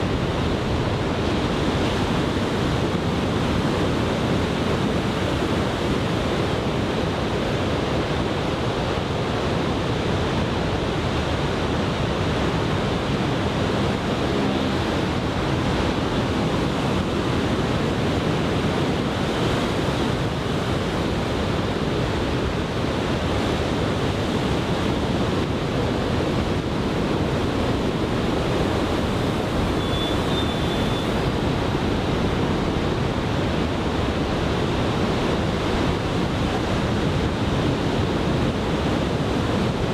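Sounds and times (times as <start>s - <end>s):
wind buffeting microphone: 13.4s - 39.9s
surf breaking on beach: 23.2s - 37.2s.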